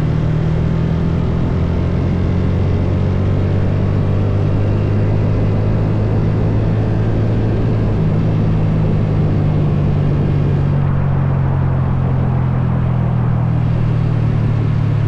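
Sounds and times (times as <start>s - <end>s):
motorcycle engine droning: 0.0s - 15.0s
road noise: 0.0s - 15.0s.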